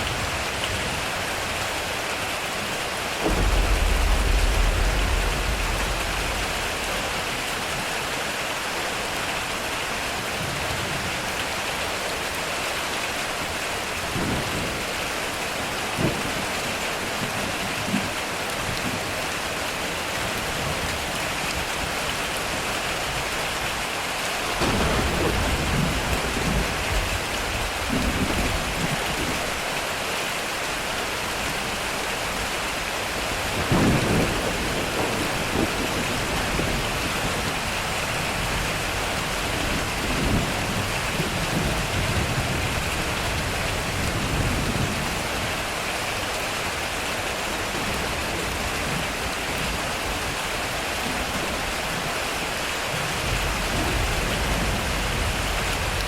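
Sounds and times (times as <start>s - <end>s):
heavy rain on metal roof: 0.0s - 56.0s
thunder rolling: 3.2s - 8.7s, 24.5s - 29.6s, 33.3s - 45.5s.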